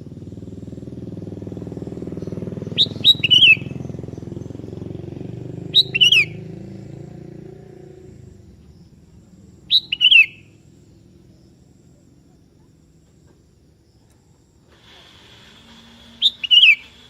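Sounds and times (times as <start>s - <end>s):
bird whistled calls: 2.6s - 3.9s, 5.6s - 6.4s, 9.7s - 10.5s, 15.2s - 17.0s.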